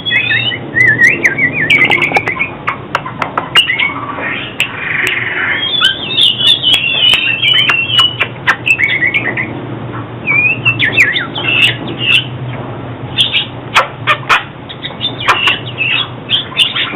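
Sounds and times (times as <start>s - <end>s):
bird singing whistled notes: 0.0s - 2.6s, 3.6s - 4.5s, 5.5s - 9.5s, 10.2s - 12.3s, 13.2s - 13.5s, 14.7s - 16.9s.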